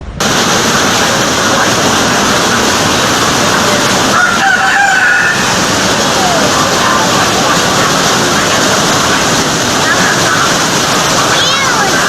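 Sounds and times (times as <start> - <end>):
strong wind and rain: 0.0 - 12.0
rooster crowing: 4.1 - 5.7.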